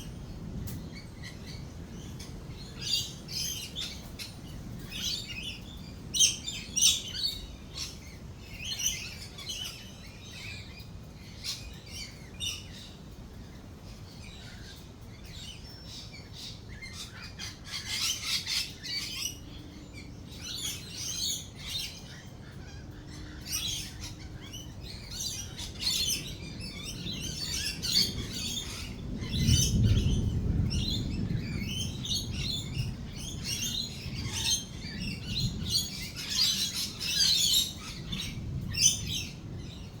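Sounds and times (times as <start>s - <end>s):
lorikeets chattering and screeching: 0.0s - 40.0s
rolling thunder: 24.7s - 40.0s.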